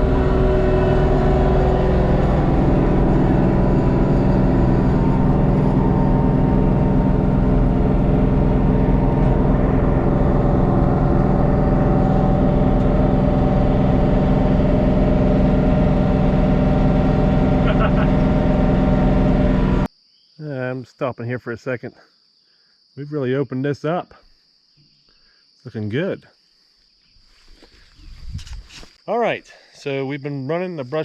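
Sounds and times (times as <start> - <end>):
tractor diesel engine running: 0.0 - 19.9.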